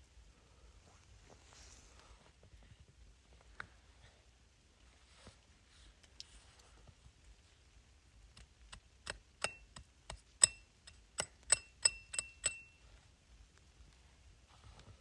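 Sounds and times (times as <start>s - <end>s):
sharp taps with metallic ring: 9.1s - 12.8s.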